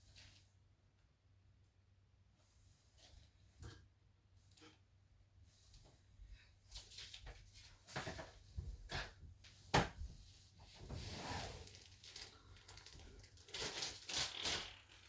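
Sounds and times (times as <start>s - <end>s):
rustling: 10.6s - 15.0s.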